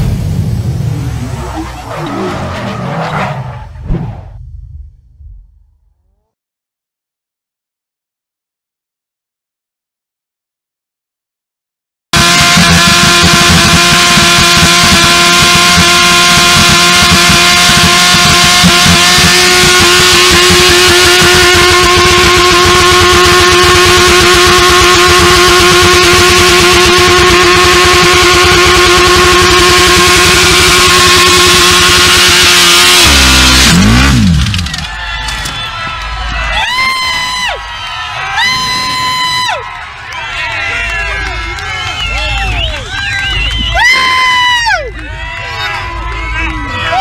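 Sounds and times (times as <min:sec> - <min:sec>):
motorcycle engine at high revs: 0:12.2 - 0:34.8.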